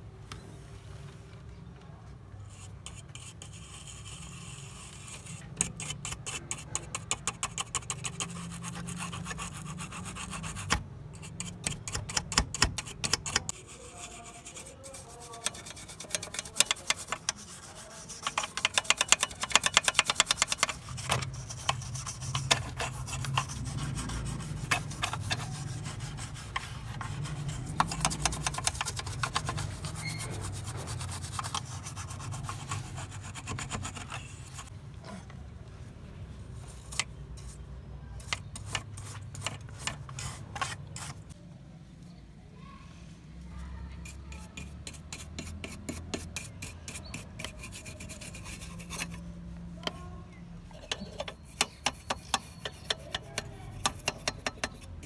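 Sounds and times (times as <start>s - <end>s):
rubbing strokes on lamp part: 2.5s - 34.7s, 44.0s - 49.3s, 50.7s - 55.0s.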